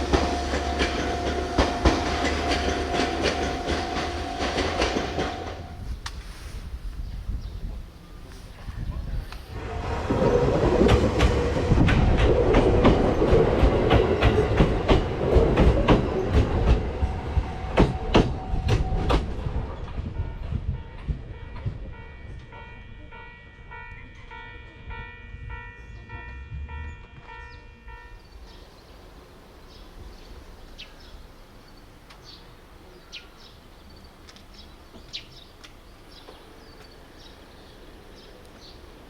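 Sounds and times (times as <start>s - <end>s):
train wheels clacking on rails: 0.0s - 5.8s, 9.5s - 28.6s.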